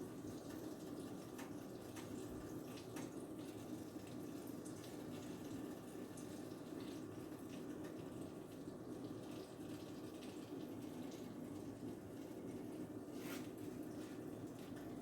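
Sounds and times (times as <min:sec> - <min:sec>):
batter sizzling in a pan: 0:00.0 - 0:15.0
low kitchen hum: 0:00.0 - 0:15.0
small crackles and pops: 0:00.3 - 0:05.5.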